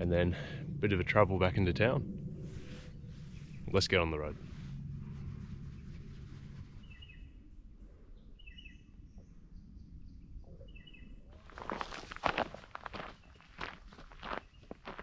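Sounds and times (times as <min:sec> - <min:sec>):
birds chirping: 0:08.1 - 0:15.0
footsteps on trail: 0:11.4 - 0:15.0.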